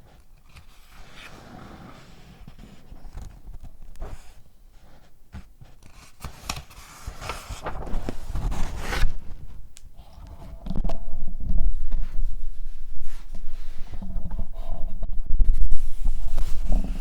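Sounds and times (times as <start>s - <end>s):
paper packaging crinkling: 5.8s - 9.6s.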